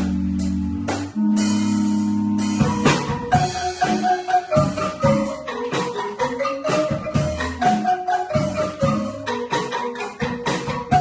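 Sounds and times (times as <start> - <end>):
bouncing bass line: 0.0 - 11.0
struck bamboo instruments melody: 0.0 - 11.0
shaken and tapped percussion: 2.4 - 11.0.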